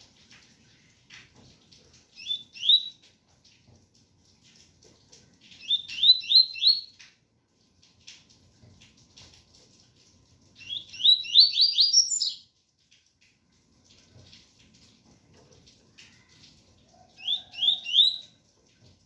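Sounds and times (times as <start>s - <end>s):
bird singing whistled notes: 2.2s - 3.0s, 5.6s - 6.9s, 10.6s - 12.4s, 17.2s - 18.3s.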